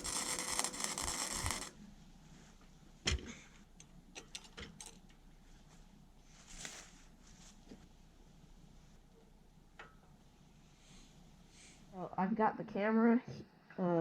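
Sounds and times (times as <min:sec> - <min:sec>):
harsh hissing crackling noise: 0:00.0 - 0:01.8.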